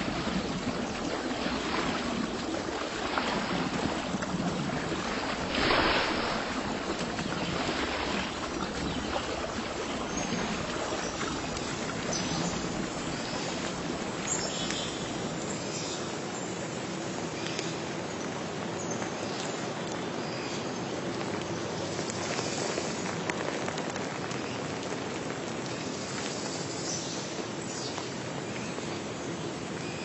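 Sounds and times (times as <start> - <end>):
water lapping: 0.0 - 17.2.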